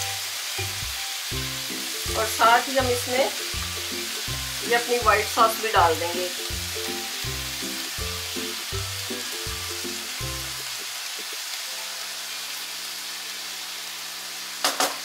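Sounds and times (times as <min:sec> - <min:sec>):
background music: 0:00.0 - 0:10.8
food sizzling in a frying pan: 0:00.0 - 0:15.0
sauce pouring: 0:03.4 - 0:04.7, 0:06.3 - 0:11.6.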